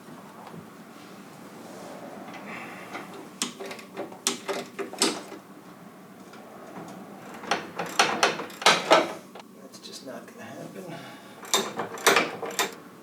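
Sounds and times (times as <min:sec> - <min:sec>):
tools and parts clicking: 0:11.4 - 0:12.8.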